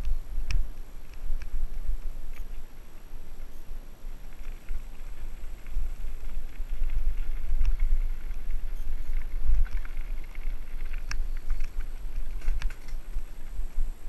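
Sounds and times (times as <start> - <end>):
wind buffeting microphone: 0.0 - 14.0
bike clicks and rattles: 4.2 - 13.8.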